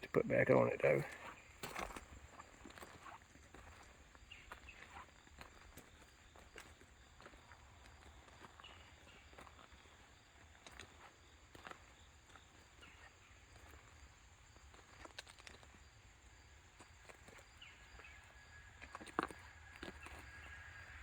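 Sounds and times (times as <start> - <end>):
faint footsteps: 0.0 - 9.5.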